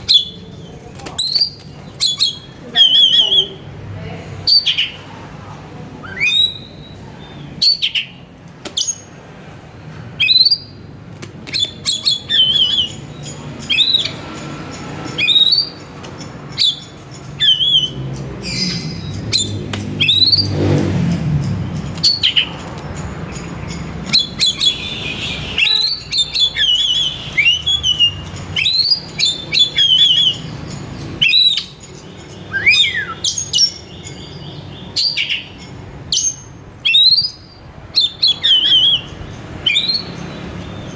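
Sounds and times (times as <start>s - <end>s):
bird singing whistled notes: 6.0s - 8.2s, 11.5s - 14.3s, 16.5s - 20.8s, 24.1s - 30.6s, 31.2s - 40.9s.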